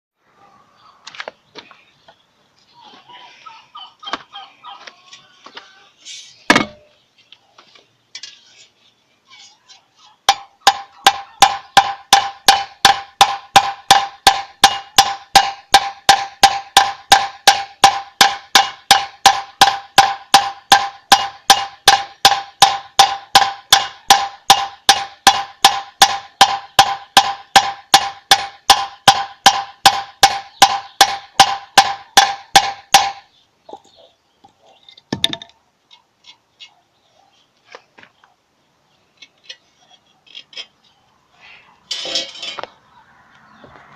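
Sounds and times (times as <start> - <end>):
knocking on ringing hard object: 10.3 - 33.2.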